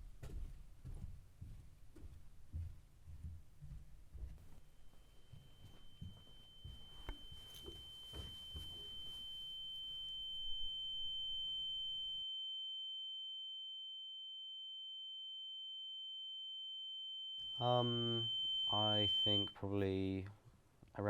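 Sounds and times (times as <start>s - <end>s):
soft low thumps: 0.0s - 4.6s
background noise: 0.0s - 12.2s, 17.4s - 21.0s
fainter lower tone: 4.6s - 20.3s
high-pitched electronic sine tone: 4.8s - 19.6s.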